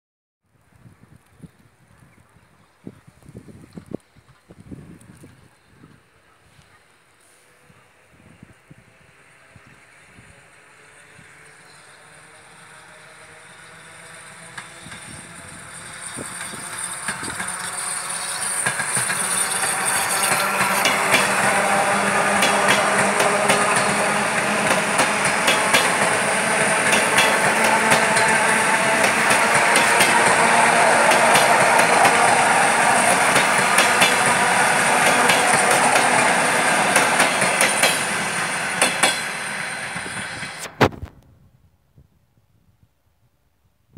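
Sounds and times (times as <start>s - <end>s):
electric train passing rumble: 7.0s - 41.0s
wheels clacking over rail joints: 13.3s - 40.7s.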